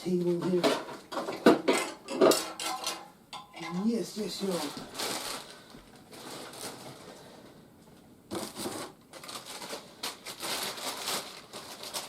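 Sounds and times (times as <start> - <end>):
packaging rustling and crinkling: 3.9 - 7.6, 8.3 - 12.0.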